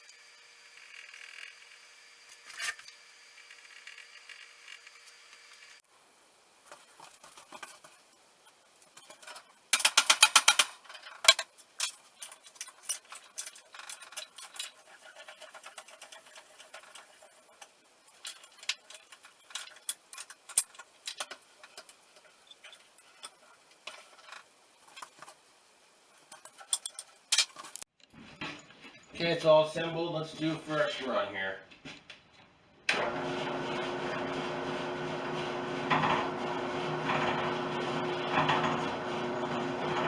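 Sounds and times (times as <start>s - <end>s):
metal tools clicking and clinking: 9.0s - 17.1s, 26.2s - 27.8s.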